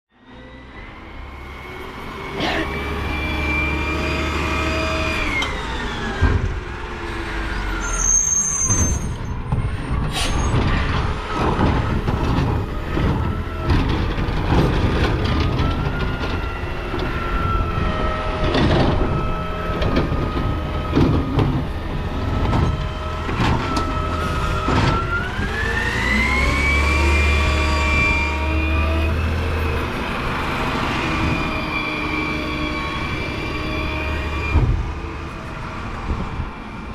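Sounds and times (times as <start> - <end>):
trash knocking and clattering: 9.5 - 17.1, 18.4 - 25.4
garbage truck engine revving: 11.1 - 36.0.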